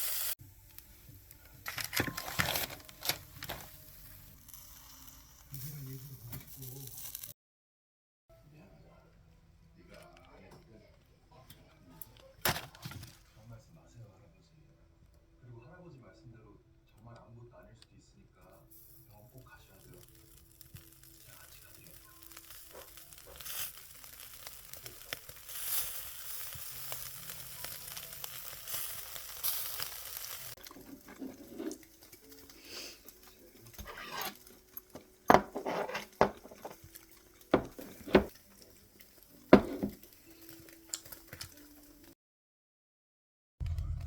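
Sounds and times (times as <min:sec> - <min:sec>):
meat sizzling on grill: 0:00.0 - 0:07.3, 0:18.7 - 0:42.1.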